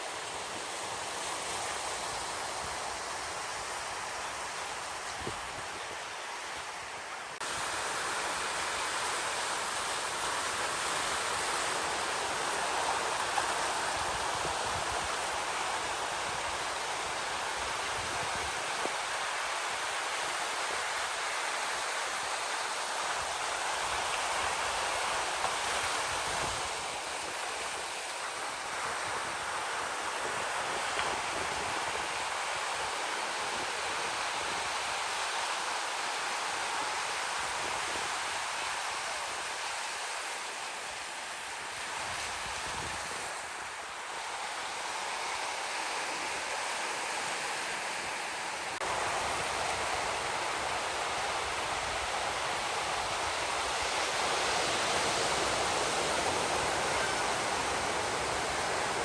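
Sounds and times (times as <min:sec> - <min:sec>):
waves breaking on beach: 0:00.0 - 0:59.0.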